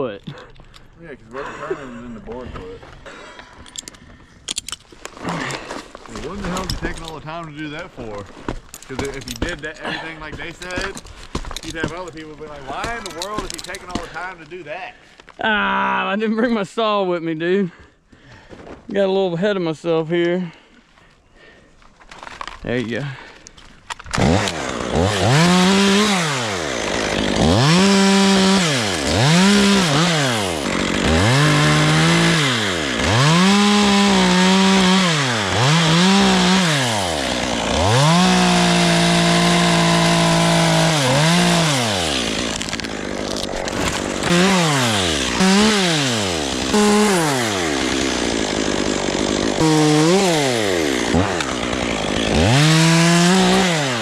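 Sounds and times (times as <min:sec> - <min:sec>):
chainsaw revving cutting wood: 0:24.1 - 0:54.0.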